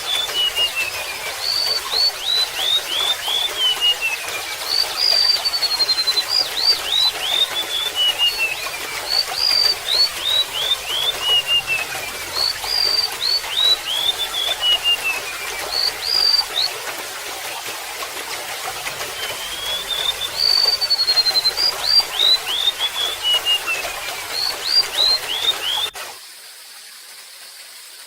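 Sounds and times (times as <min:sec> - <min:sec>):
gurgling water trickle: 0:00.0 - 0:28.0.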